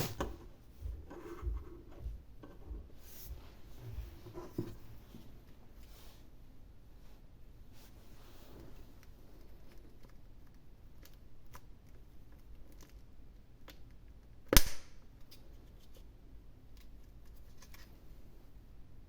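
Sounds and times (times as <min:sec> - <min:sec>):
sharp snap: 0:14.5 - 0:15.0.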